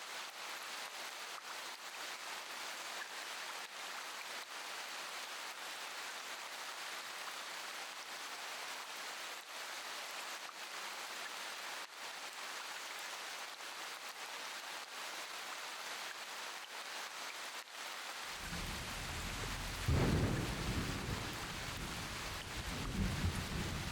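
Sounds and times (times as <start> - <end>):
steady rain falling: 0.0 - 23.9
low rumble of thunder: 18.4 - 23.9.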